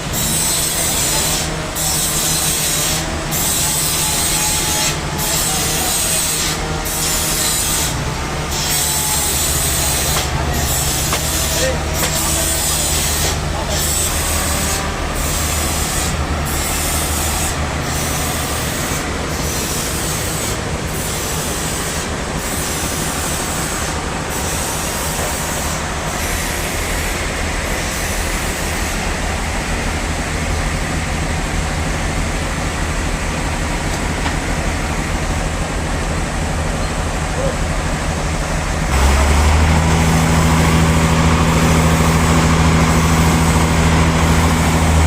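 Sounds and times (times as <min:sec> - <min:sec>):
sawmill saw cutting log: 0:00.0 - 0:30.3, 0:37.0 - 0:45.0
low motor hum: 0:30.0 - 0:45.0.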